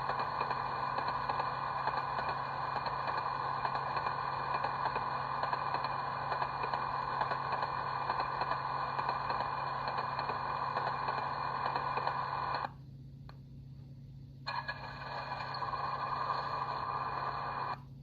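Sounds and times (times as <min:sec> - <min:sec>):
model train generator sound: 0:00.0 - 0:12.8, 0:14.5 - 0:17.8.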